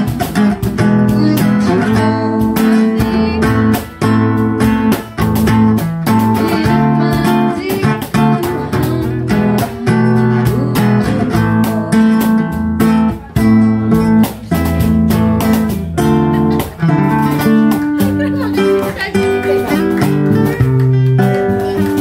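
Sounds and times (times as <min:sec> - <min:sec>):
strummed acoustic guitar music: 0:00.0 - 0:22.0.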